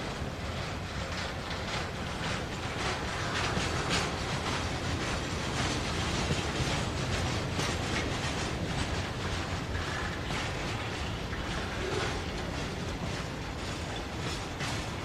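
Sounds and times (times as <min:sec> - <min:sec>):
freight train rumbling past: 0:00.0 - 0:15.0
steel wheels clattering on rails: 0:00.0 - 0:15.0.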